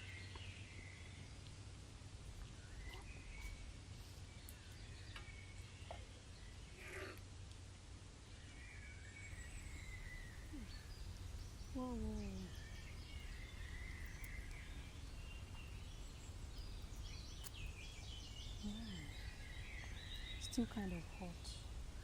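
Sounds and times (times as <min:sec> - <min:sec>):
low steady rumble: 0:07.4 - 0:22.0
bird chirps and calls: 0:08.5 - 0:22.0.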